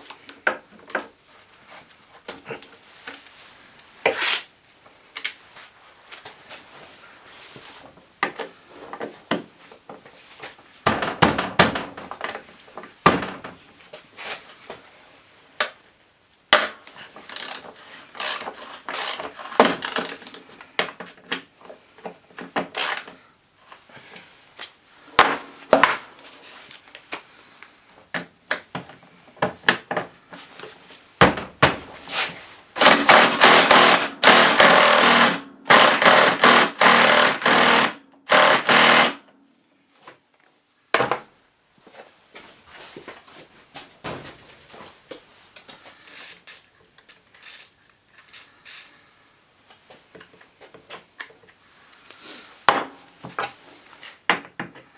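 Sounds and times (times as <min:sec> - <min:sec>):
power tool running: 0:17.3 - 0:20.3, 0:32.8 - 0:39.2.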